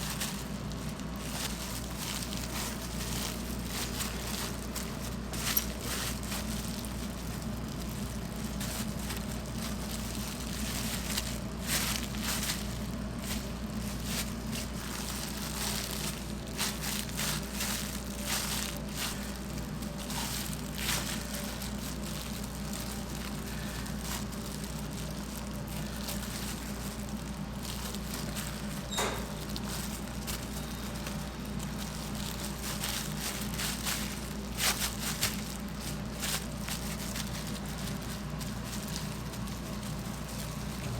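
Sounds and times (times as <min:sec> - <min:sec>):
food crackling and crunching: 0:00.0 - 0:40.9
kitchen equipment hum: 0:00.0 - 0:40.9.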